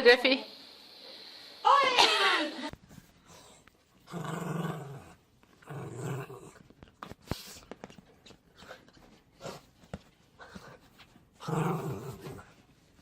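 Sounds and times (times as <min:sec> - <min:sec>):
dog growling: 0:04.0 - 0:06.7, 0:11.4 - 0:12.5.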